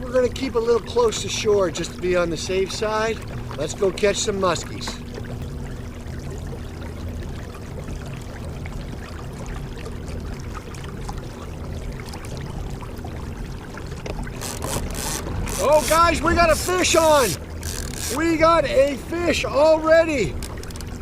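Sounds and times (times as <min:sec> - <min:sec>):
water lapping along hull: 0:00.0 - 0:21.0
fishing reel clicker: 0:14.4 - 0:18.2, 0:20.3 - 0:21.0.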